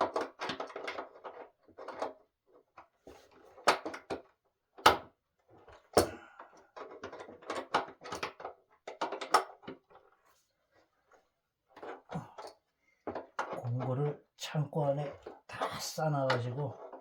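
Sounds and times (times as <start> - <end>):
wooden table parts knocking: 11.8 - 13.9.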